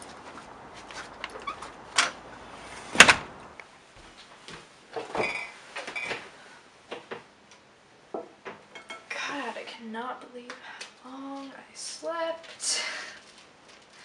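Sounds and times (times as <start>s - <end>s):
door banging shut: 2.9s - 3.6s.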